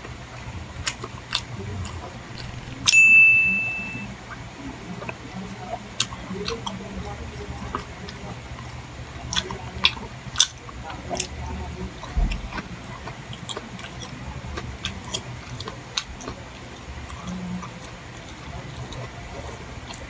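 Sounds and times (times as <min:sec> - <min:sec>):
low steady hum: 0:00.0 - 0:20.0
chewing and mouth sounds: 0:00.3 - 0:02.9, 0:05.0 - 0:20.0.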